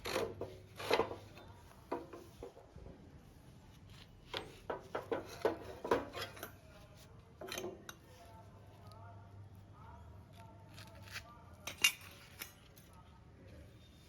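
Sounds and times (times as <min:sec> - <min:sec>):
metal tools clinking: 0:11.6 - 0:12.8.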